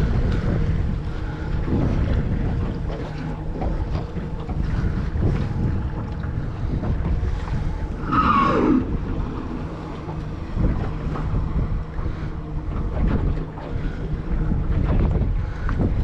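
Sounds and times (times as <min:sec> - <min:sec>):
water sounds: 0:00.0 - 0:16.0
wind buffeting microphone: 0:00.0 - 0:16.0
brief falling squeal: 0:08.0 - 0:08.8.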